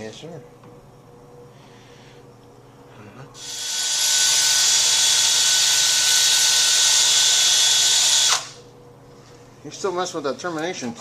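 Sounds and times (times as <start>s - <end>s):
handheld power tool whining: 3.4s - 8.6s.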